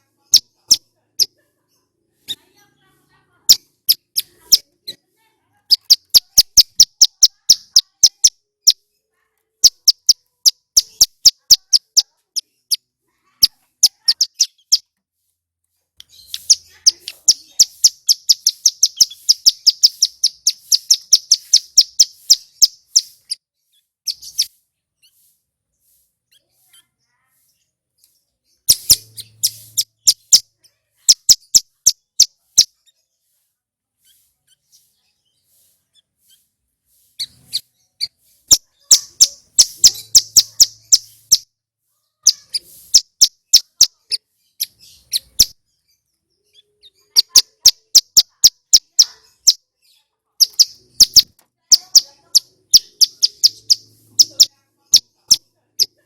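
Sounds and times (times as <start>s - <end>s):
bird singing sharp chip notes: 16.0s - 23.4s, 28.5s - 30.4s, 37.2s - 41.5s.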